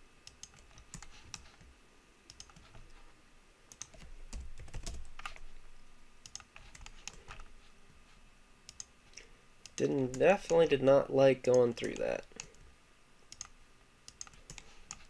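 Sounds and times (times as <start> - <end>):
mouse buttons clicking: 2.3 - 2.8, 8.7 - 8.9
keyboard keys clicking: 2.3 - 2.9, 3.7 - 5.4.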